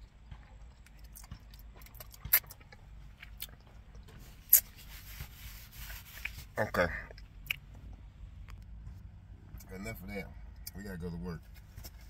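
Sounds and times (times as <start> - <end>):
chewing mouth sounds: 0.3 - 5.0, 7.1 - 8.0.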